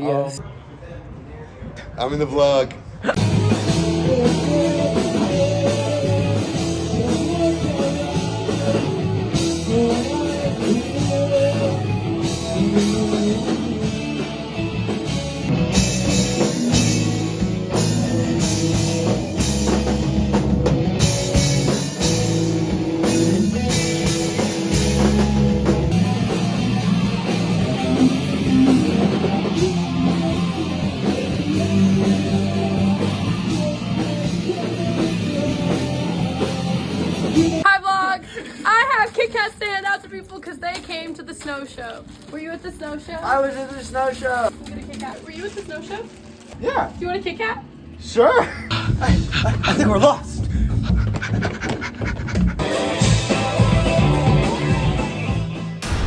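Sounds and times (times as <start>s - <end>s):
rock music with drums and guitar: 3.2s - 37.7s, 48.7s - 56.0s.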